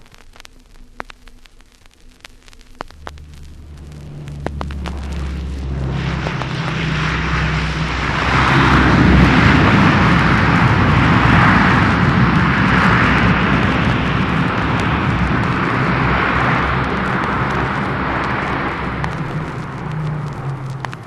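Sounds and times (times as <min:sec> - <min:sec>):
vinyl record clicks: 0:00.0 - 0:06.9, 0:13.2 - 0:21.0
aircraft engine roar: 0:02.8 - 0:21.0.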